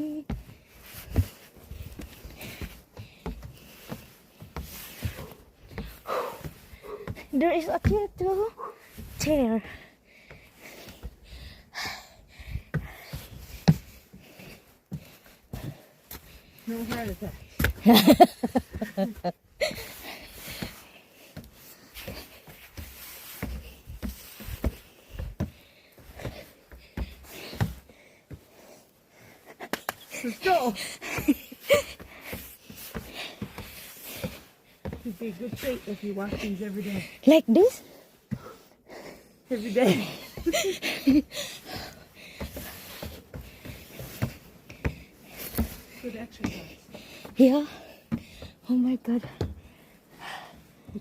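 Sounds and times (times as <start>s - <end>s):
footsteps on outdoor stairs: 0.0s - 51.0s
faint breathing: 0.5s - 7.3s, 9.6s - 16.7s, 19.6s - 31.2s, 37.8s - 48.6s, 49.2s - 51.0s.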